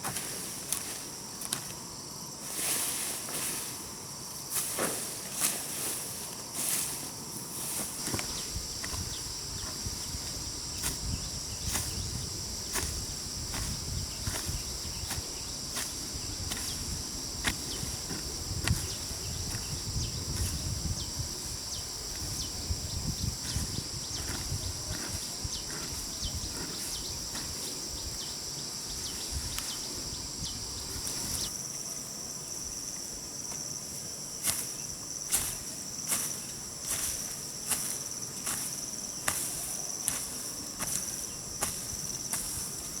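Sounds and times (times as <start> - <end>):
insects chirring: 0.0 - 43.0.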